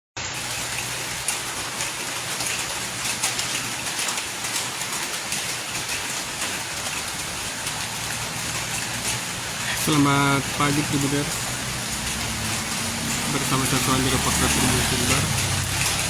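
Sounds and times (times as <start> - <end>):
rain on hard surface: 0.2 - 16.0.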